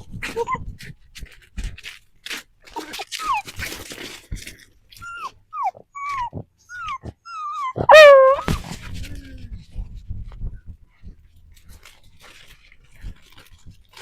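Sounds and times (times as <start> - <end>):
dog whining: 6.0 - 8.6
dog crying: 7.6 - 8.6.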